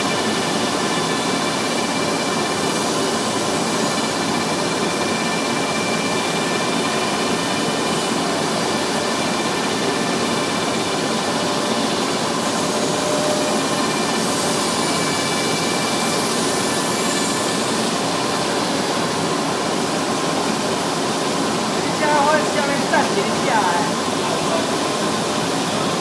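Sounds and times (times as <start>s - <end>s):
sanding machine rushing noise: 0.0s - 26.0s.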